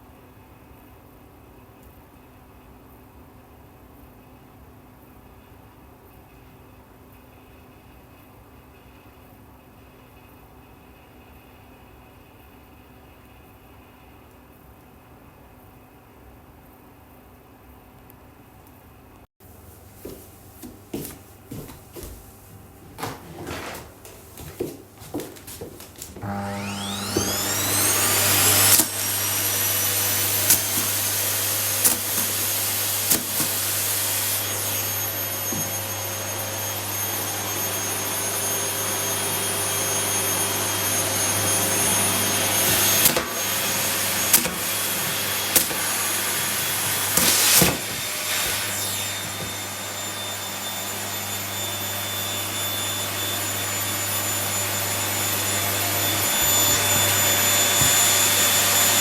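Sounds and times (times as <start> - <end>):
vacuum cleaner motor whining: 21.0 - 59.0.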